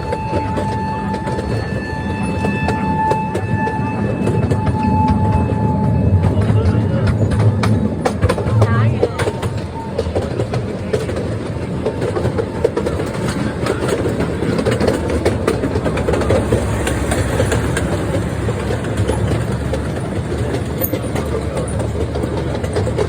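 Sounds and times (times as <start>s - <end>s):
small train rumbling on track: 0.0s - 23.0s
wheel clicks on rails: 6.4s - 23.0s.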